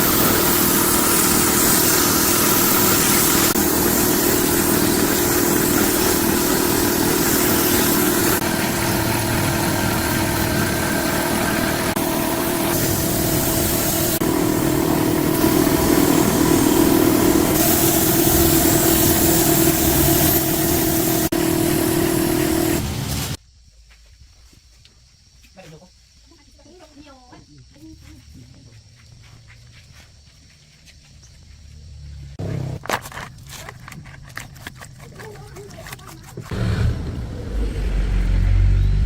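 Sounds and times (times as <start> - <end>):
diesel engine idling: 3.6 - 23.1.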